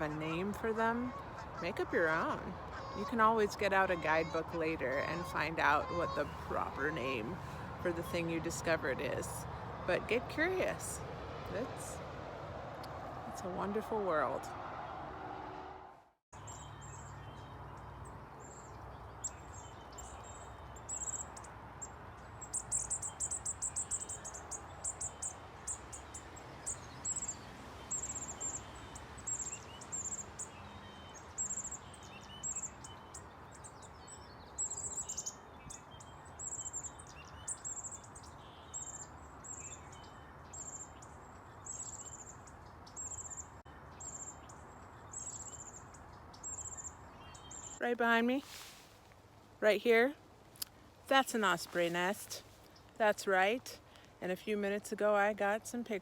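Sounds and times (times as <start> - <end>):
small birds chirping: 0.0 - 12.0, 16.3 - 56.0.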